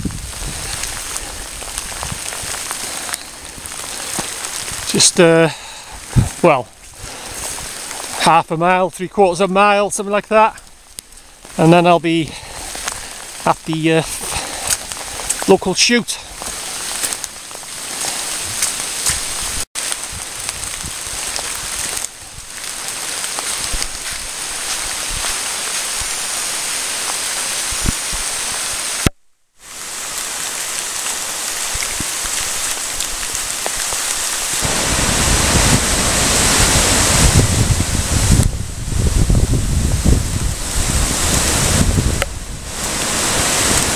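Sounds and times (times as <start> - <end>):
wind buffeting microphone: 0.0 - 5.0, 5.9 - 8.1, 34.6 - 43.9
raindrops striking camera: 0.0 - 6.4, 12.4 - 29.2, 30.0 - 38.5, 40.0 - 43.9
heavy rain hissing: 0.0 - 43.9.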